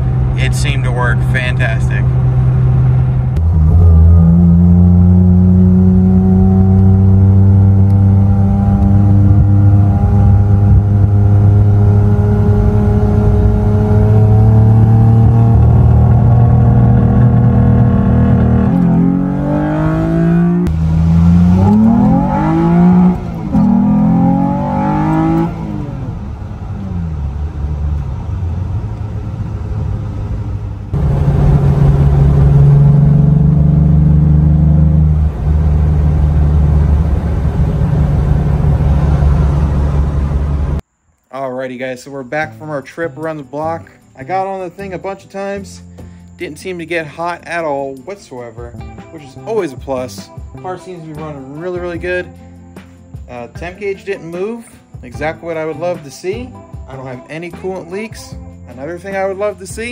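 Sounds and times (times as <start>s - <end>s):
car engine accelerating: 0.0s - 40.8s.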